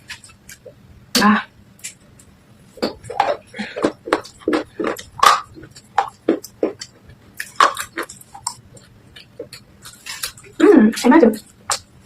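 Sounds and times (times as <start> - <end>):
spoon crunching clay in bowl: 2.8 - 11.9.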